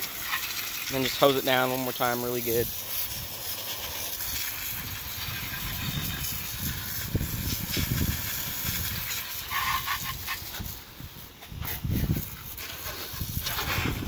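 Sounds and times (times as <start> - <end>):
hose spraying water: 0.0 - 14.0
wind rumbling on microphone: 4.1 - 14.0.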